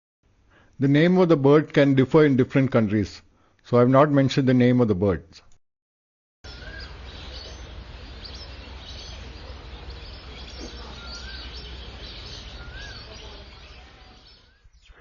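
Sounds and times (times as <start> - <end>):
birds chirping: 6.4 - 15.0
birds whistling: 6.4 - 15.0.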